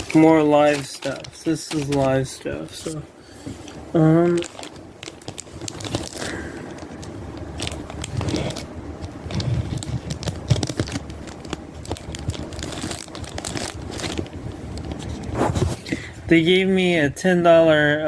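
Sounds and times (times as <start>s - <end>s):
packaging crinkling and crackling: 0.0s - 16.1s.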